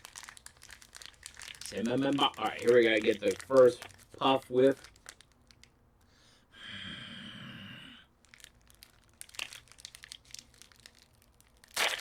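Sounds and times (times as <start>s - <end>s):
snack wrapper crinkling and tearing: 0.0s - 5.7s, 8.2s - 12.0s.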